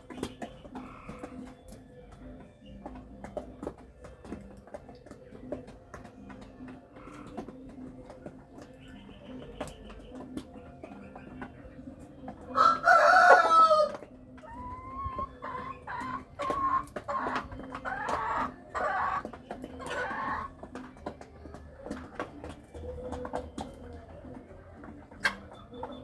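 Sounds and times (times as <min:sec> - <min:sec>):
hens clucking: 0:00.0 - 0:26.0
rooster crowing: 0:12.6 - 0:14.0.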